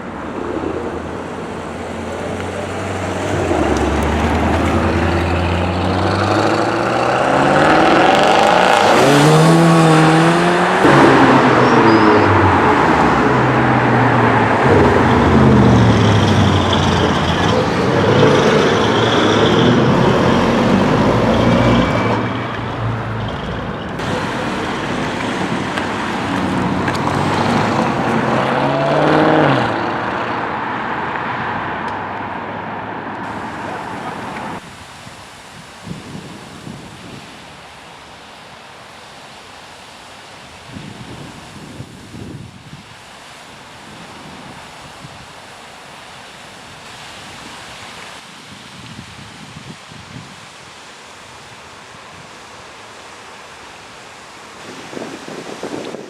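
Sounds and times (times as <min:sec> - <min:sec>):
loud car exhaust revving: 0:01.8 - 0:30.8.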